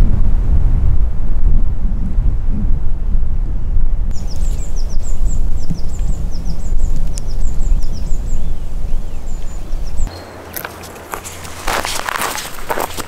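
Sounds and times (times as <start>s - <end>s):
wind buffeting microphone: 0.0s - 13.0s
songbird chirping: 4.1s - 13.0s.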